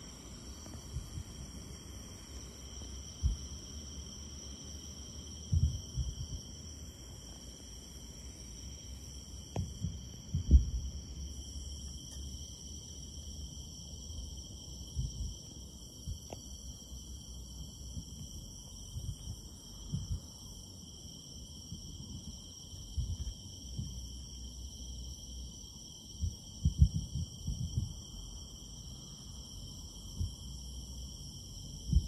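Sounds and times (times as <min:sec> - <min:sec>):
insects trilling: 0:00.0 - 0:32.0
distant fireworks booming: 0:05.5 - 0:06.4, 0:09.5 - 0:11.0.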